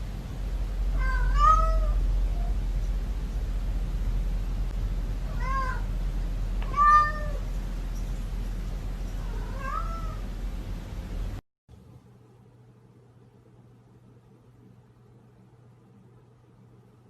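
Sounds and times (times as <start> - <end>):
steady low hum: 0.0 - 17.0
cat meowing: 0.9 - 2.6, 5.2 - 5.9, 6.6 - 7.5, 9.2 - 10.3.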